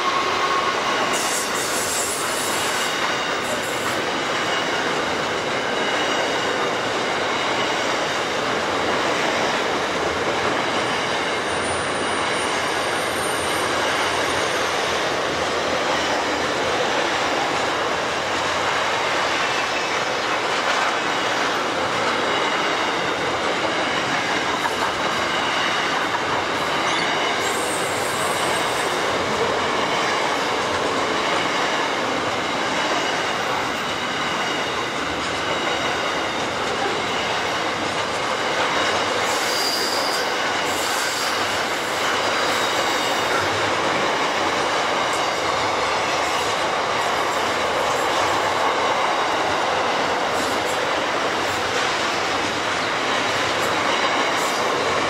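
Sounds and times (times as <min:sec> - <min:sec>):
steel wheels rumbling on rail: 0:00.0 - 0:55.0
thin wheel squeal: 0:39.4 - 0:40.2.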